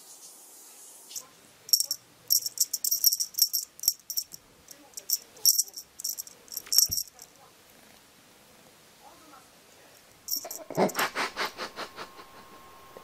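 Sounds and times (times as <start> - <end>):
small bell jingling: 1.1 - 7.4, 10.2 - 11.0.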